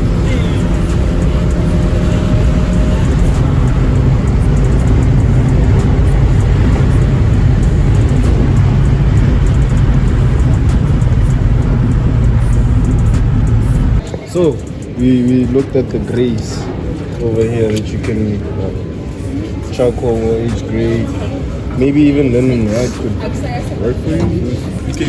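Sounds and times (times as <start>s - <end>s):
low even hum: 0.0s - 14.1s
car engine running: 0.0s - 16.6s.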